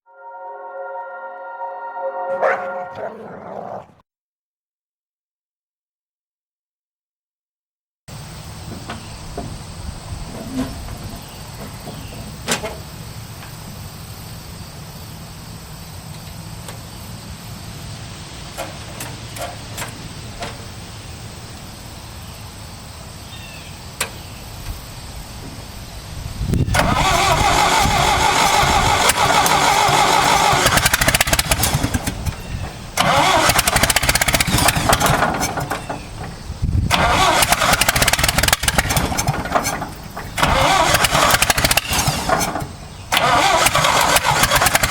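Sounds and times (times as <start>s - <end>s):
tractor engine cranking: 26.7s - 44.9s.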